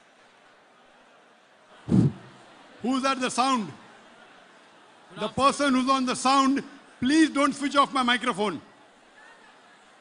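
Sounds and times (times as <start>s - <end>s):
loud vocal sound into microphone: 1.9s - 2.3s.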